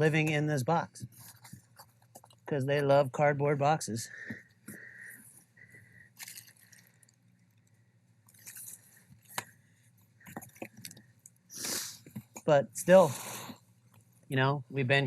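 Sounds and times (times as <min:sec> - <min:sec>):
faint low hum: 0:00.0 - 0:15.0
handling rustles and clicks: 0:01.0 - 0:02.6, 0:06.2 - 0:07.7, 0:08.3 - 0:11.4.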